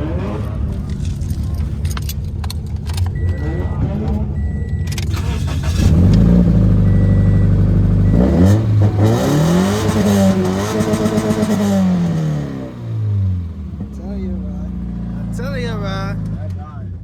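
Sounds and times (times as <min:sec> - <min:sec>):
car engine revving: 0:00.0 - 0:16.7.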